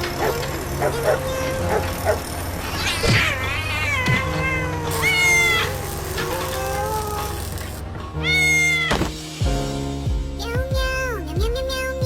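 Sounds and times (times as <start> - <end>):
background music: 0.0 - 12.0
cat meowing: 0.2 - 9.1.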